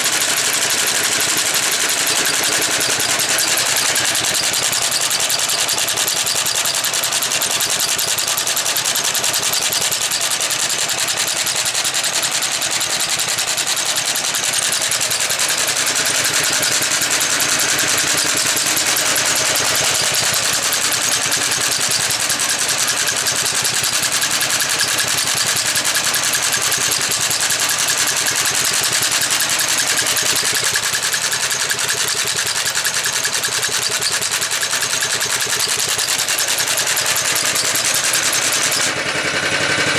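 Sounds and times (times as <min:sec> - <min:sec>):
walk-behind tractor engine running: 0:00.0 - 0:39.9.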